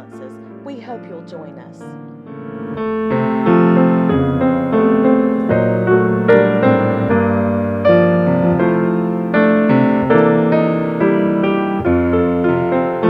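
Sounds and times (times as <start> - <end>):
piano playing: 0.0 - 13.0.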